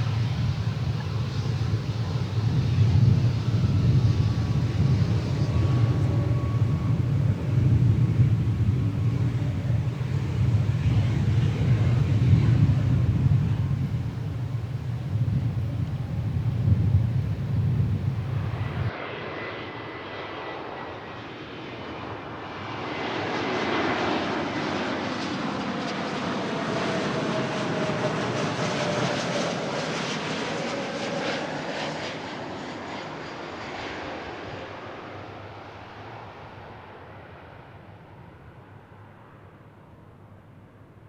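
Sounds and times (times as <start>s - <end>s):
jet airliner passing: 0.0s - 41.0s
loud low rumble: 2.9s - 18.9s.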